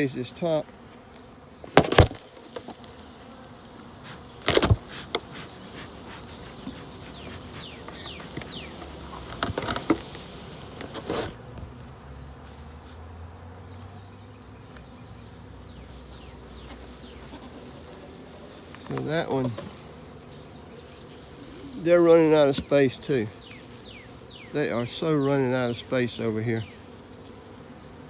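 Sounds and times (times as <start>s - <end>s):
honeybees buzzing: 0.0s - 28.0s
wooden hive parts knocking: 4.1s - 11.0s.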